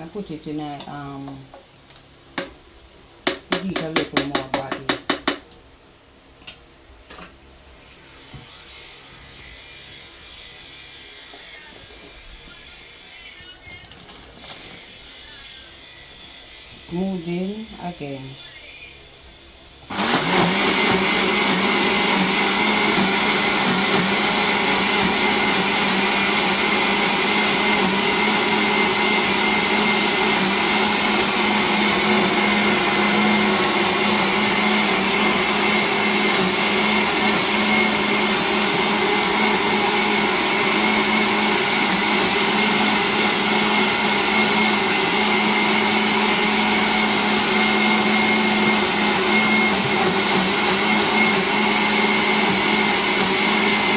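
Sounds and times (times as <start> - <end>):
electric blender running: 19.8 - 53.9.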